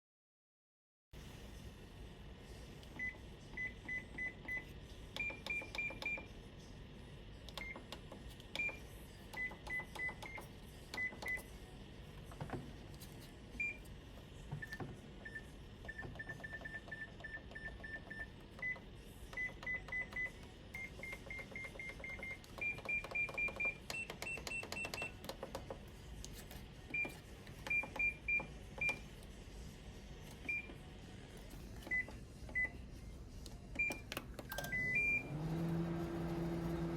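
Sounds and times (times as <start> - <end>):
microwave control panel beeping: 3.0 - 6.3, 7.5 - 11.5, 14.6 - 25.6, 26.9 - 29.1, 30.4 - 30.8, 31.8 - 32.8, 33.7 - 36.9.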